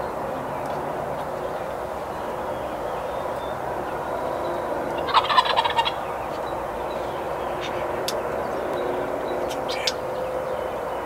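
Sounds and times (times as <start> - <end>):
turkey gobbling: 5.0 - 6.0.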